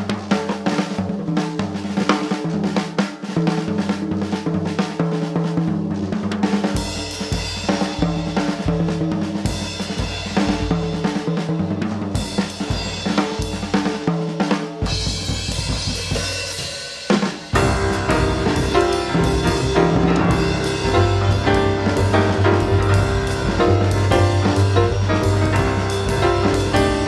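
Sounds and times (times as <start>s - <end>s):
jazz drum solo: 0.0s - 27.0s
jazz band playing: 17.5s - 27.0s.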